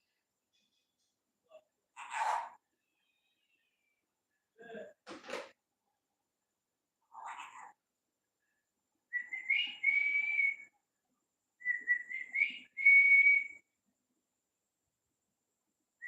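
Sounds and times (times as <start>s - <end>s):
parrot whistling: 9.1s - 10.7s, 11.6s - 13.6s.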